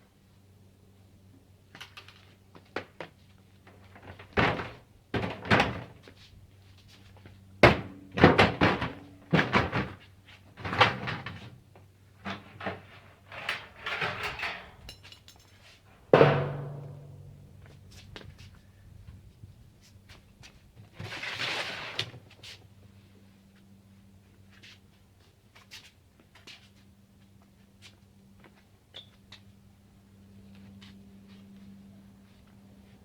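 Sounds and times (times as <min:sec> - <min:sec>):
sheet metal knocks and scrapes: 0:12.2 - 0:15.1, 0:16.1 - 0:17.8
loud metallic bang: 0:16.1 - 0:17.6.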